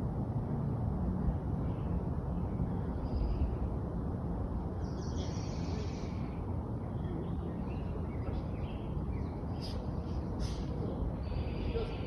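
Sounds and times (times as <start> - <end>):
steady low rumble: 0.0 - 12.0
bird singing: 4.8 - 10.3.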